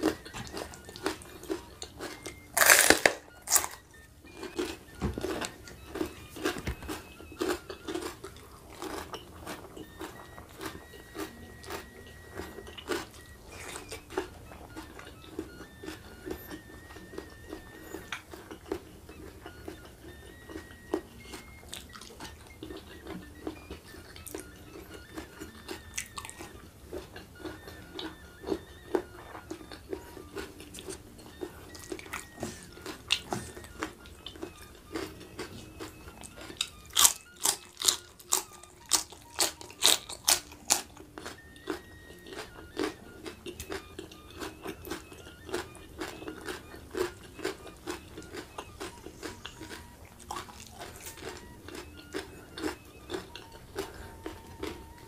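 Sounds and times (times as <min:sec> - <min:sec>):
crunchy bite into beans: 0:00.0 - 0:09.3, 0:31.7 - 0:54.8
crunchy chewing with mouth clicks: 0:00.0 - 0:55.0.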